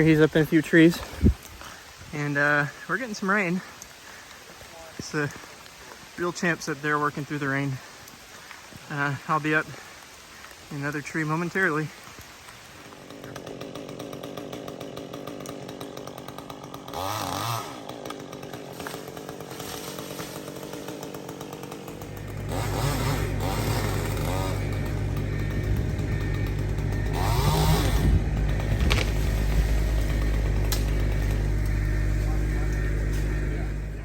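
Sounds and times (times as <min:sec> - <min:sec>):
chainsaw revving: 0:00.0 - 0:34.0
heavy low rumble: 0:22.0 - 0:34.0.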